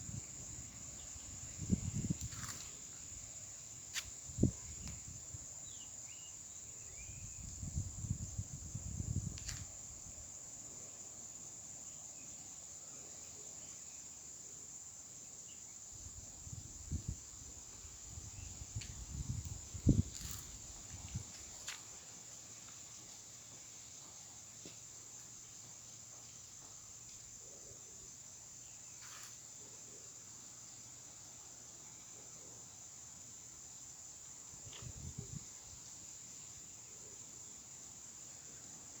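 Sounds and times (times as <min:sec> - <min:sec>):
crickets chirping: 0:00.0 - 0:39.0.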